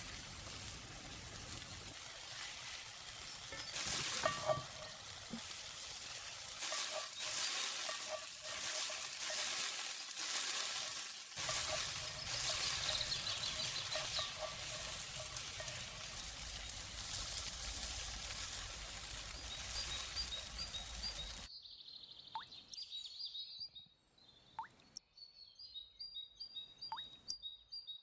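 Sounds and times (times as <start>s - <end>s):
food sizzling in a pan: 0.0s - 21.5s
utensil ticking against pan: 11.4s - 21.4s.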